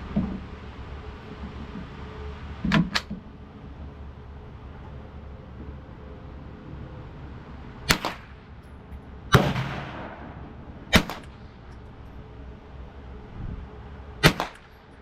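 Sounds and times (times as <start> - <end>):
gunshots echoing: 9.3 - 11.4, 14.2 - 14.6.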